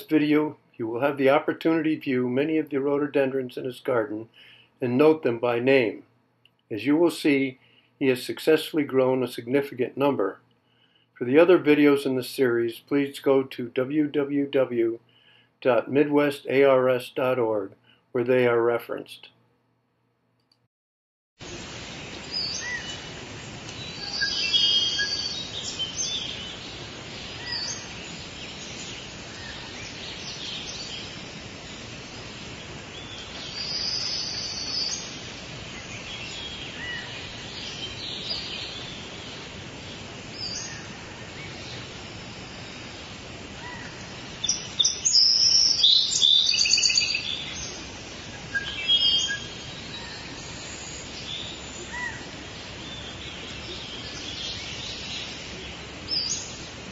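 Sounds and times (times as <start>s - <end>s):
steady background hiss: 0.0s - 19.5s, 21.4s - 56.9s
songbirds singing and chirping: 21.4s - 56.9s.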